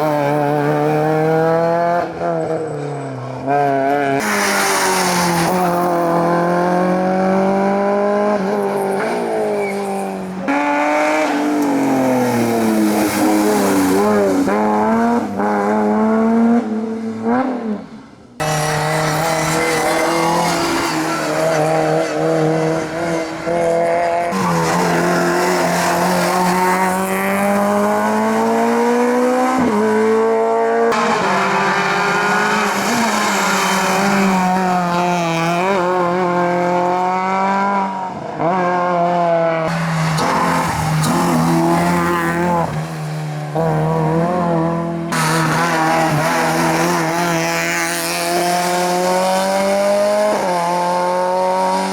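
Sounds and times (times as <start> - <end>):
racing car engines at full throttle: 0.0 - 51.9
tyres squealing: 24.3 - 27.2.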